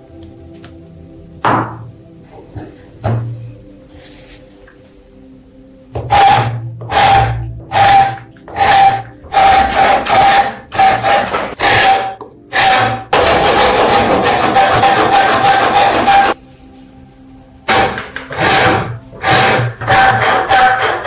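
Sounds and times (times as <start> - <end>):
file rasping on metal: 6.0 - 16.4, 17.7 - 21.0.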